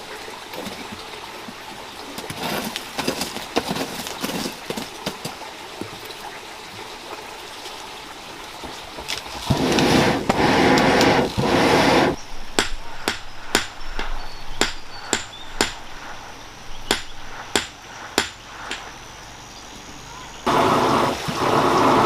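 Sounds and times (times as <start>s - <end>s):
hammer striking iron: 12.6s - 15.9s, 16.9s - 18.9s
loud rushing noise: 20.4s - 22.0s.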